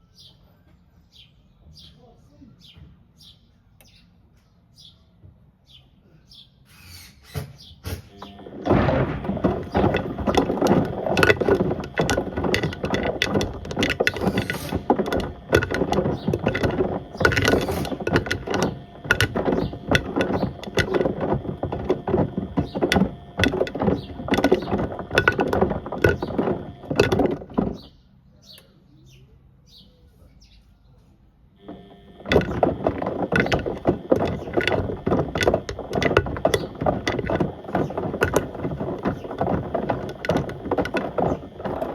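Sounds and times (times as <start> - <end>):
hard objects clattering in washing machine: 8.0 - 28.0, 31.7 - 41.9.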